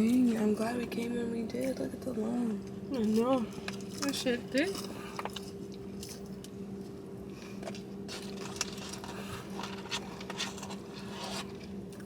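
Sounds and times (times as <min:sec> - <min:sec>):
steady low hum: 0:00.0 - 0:12.0
food wrappers rustling: 0:07.5 - 0:12.0.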